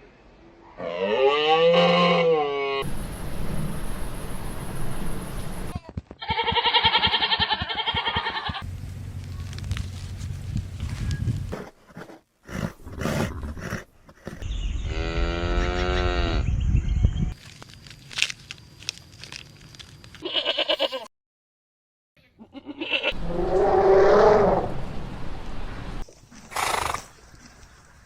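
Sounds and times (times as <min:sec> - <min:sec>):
goats bleating: 0:06.2 - 0:08.6, 0:20.2 - 0:21.1.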